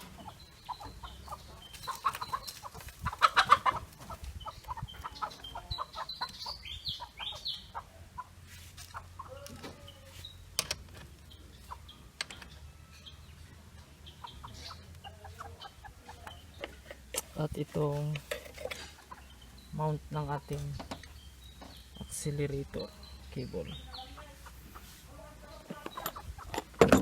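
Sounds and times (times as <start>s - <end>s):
chickens clucking: 0.0s - 27.0s
metal clicks and knocks: 10.6s - 11.2s, 25.7s - 27.0s.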